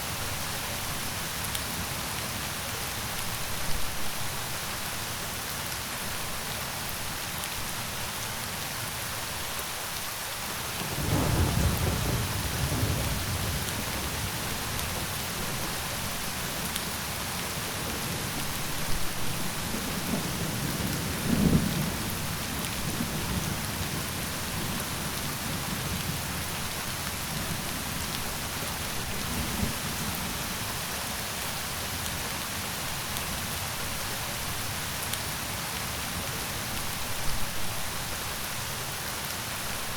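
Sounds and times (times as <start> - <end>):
steady rain: 0.0 - 39.9
thunder rumbling: 10.9 - 15.6.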